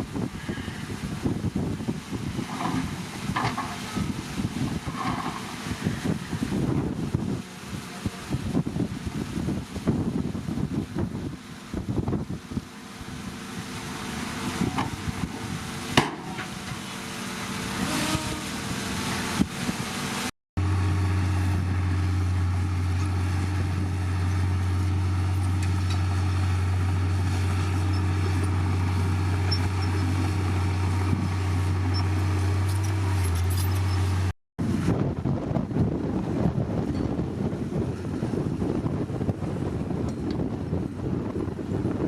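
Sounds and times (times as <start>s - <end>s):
wind-like noise: 0.0s - 16.4s, 34.2s - 42.0s
heavy diesel engine droning: 12.7s - 42.0s
knocks and clanks: 16.0s - 16.8s.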